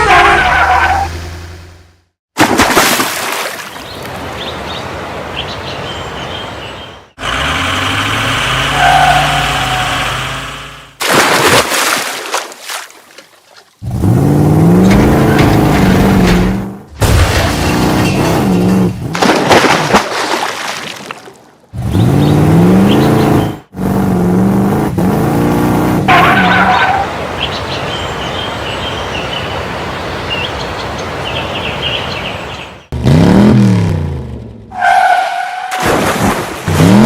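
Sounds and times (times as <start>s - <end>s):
vehicle engine revving: 7.2s - 11.0s, 13.8s - 16.9s, 21.8s - 29.0s, 32.9s - 34.7s.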